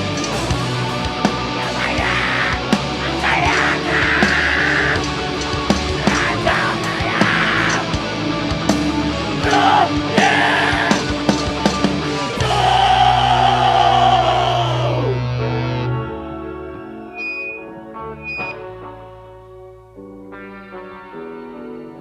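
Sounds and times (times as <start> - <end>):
heavy metal band playing: 0.0 - 19.3
screamed vocals: 1.6 - 5.1, 6.0 - 8.0, 9.4 - 11.2, 12.4 - 17.7.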